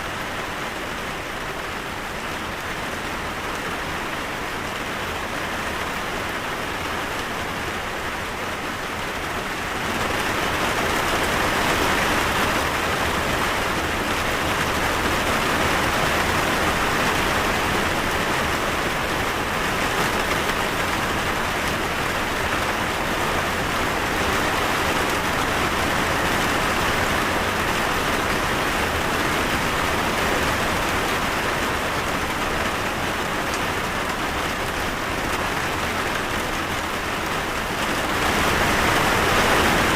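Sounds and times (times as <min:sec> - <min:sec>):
rain on a surface: 0:00.0 - 0:39.9.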